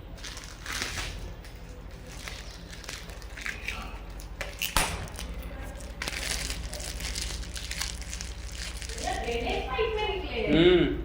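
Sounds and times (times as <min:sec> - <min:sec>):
steady low hum: 0:00.0 - 0:11.0
scraping and crackling of parts: 0:00.2 - 0:09.5
sharp crack: 0:04.6 - 0:07.9.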